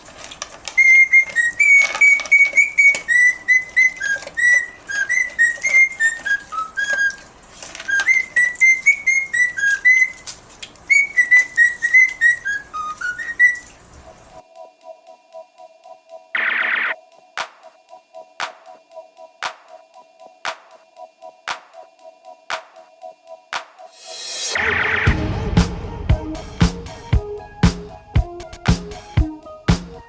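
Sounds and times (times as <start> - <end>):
parrot whistling a tune: 8.0 - 10.1.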